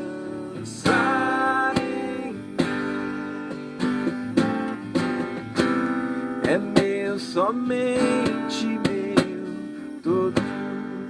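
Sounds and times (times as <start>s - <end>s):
person singing a hymn: 0.0s - 2.5s
acoustic guitar strumming: 0.0s - 11.0s.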